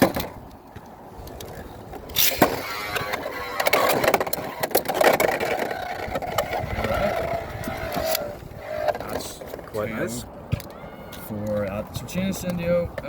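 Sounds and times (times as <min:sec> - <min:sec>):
spinning top whine: 0:02.2 - 0:09.1.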